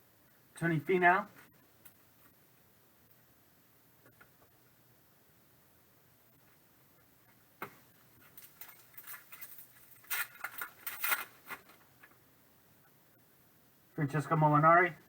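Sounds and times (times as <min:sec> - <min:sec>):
paper and foil rustling: 0:08.2 - 0:11.9.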